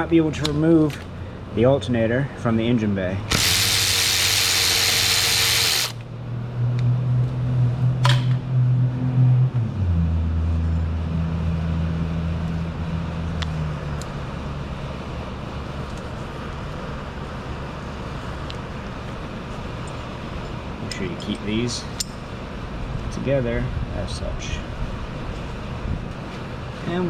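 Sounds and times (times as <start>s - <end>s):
low mechanical hum: 0.0s - 27.0s
power tool running: 3.3s - 6.0s.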